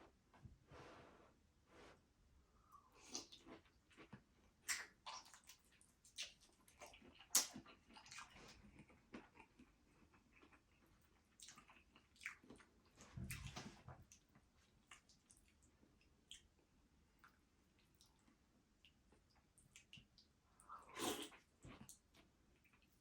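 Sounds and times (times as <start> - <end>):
wet chewing and lip-smacking: 3.0 - 16.6, 17.2 - 20.3.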